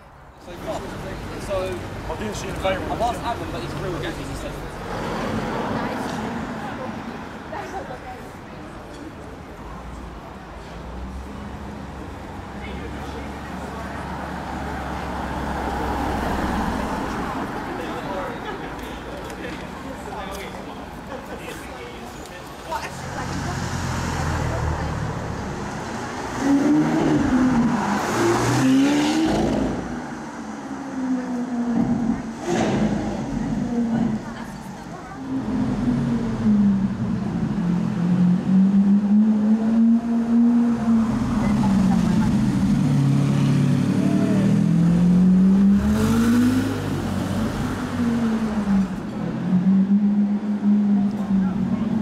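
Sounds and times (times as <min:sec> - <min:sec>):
car engine revving: 0:23.1 - 0:52.0.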